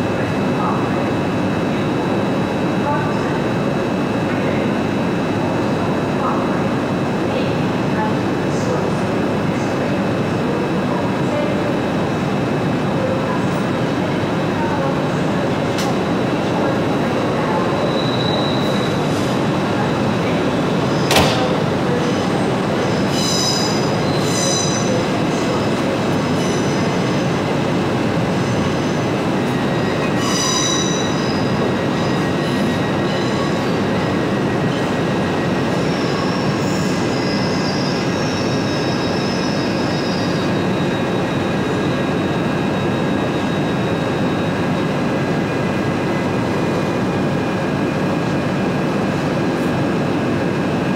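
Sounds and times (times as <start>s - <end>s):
train wheel and rail noise: 0.0s - 50.9s
high-pitched wheel squeals: 29.8s - 31.5s.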